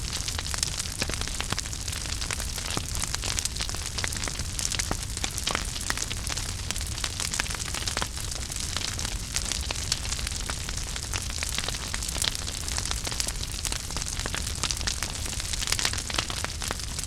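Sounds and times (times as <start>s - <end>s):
fire crackling and popping: 0.0s - 17.0s
fire hissing and rumbling: 0.0s - 17.0s.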